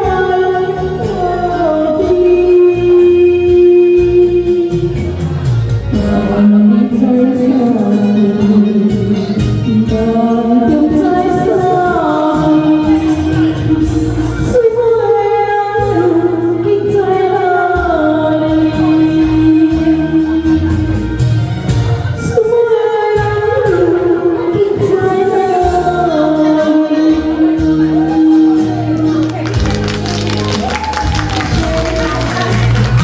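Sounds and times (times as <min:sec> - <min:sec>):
person singing: 0:00.0 - 0:21.4
karaoke backing track: 0:00.0 - 0:33.0.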